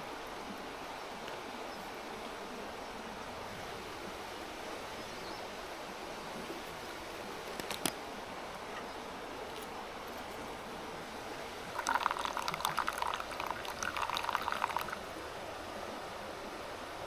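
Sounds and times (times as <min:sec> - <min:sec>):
mountain stream rushing: 0:00.0 - 0:17.0
liquid being poured: 0:11.6 - 0:15.2.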